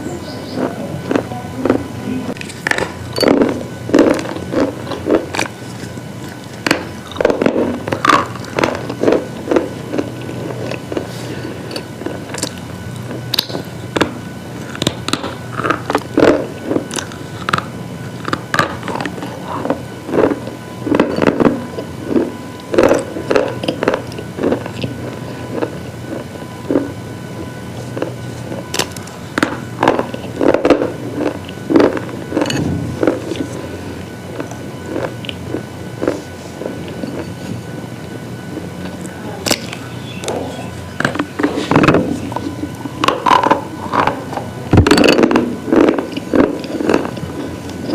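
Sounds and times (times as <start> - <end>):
faint steady hum: 0.0 - 47.9
slate pieces crunching: 27.8 - 33.6.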